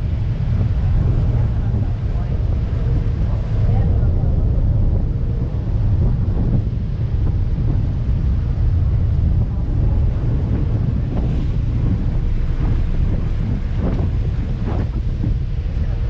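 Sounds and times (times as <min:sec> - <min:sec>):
sea rushing: 0:00.0 - 0:16.0
wind buffeting microphone: 0:00.0 - 0:16.0.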